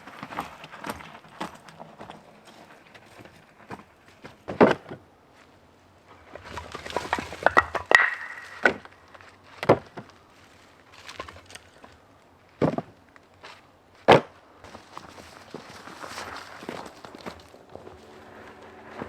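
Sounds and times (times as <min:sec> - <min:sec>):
firewood logs knocking: 0:06.3 - 0:10.2.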